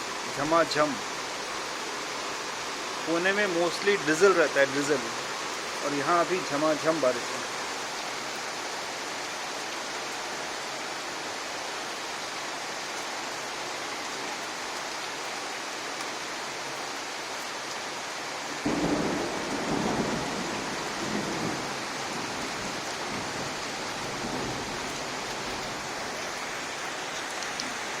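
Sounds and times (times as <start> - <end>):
heavy rain pouring: 0.0 - 28.0
thunder rumble: 18.6 - 26.1.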